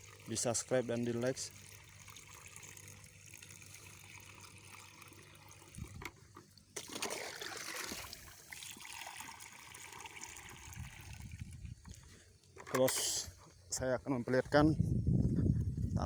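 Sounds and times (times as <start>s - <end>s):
water trickling into a tank: 0.0s - 12.0s.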